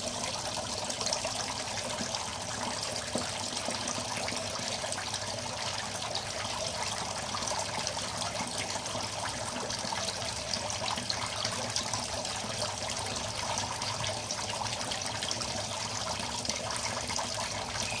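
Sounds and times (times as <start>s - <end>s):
water trickling into a pond: 0.0s - 18.0s.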